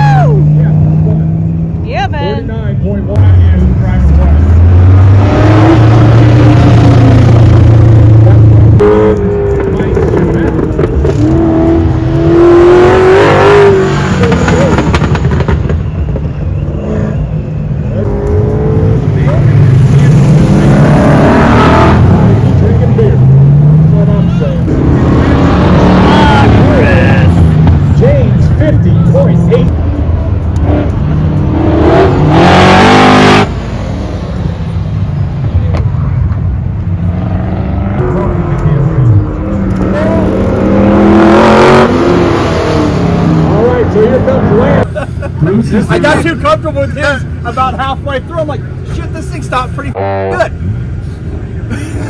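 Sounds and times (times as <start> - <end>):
car engine running hard: 0.0 - 52.0.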